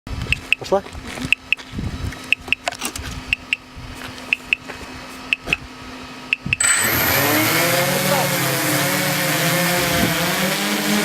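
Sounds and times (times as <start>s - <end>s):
drone motors whirring: 6.2s - 11.0s.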